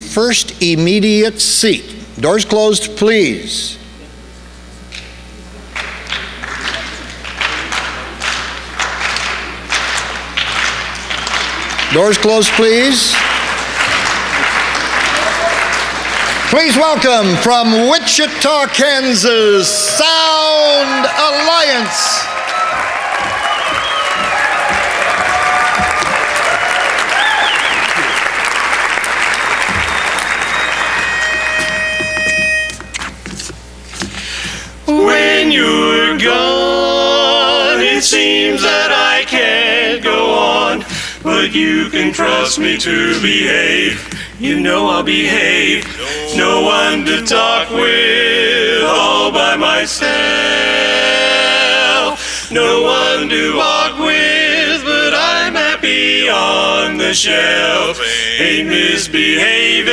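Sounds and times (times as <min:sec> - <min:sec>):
low electrical hum: 0:00.0 - 0:59.9
thuds and claps: 0:05.8 - 0:12.0, 0:22.7 - 0:27.0, 0:29.0 - 0:31.0
audience applause: 0:05.8 - 0:32.2
people cheering: 0:06.4 - 0:32.5, 0:46.0 - 0:49.8
held steady note: 0:29.7 - 0:33.2.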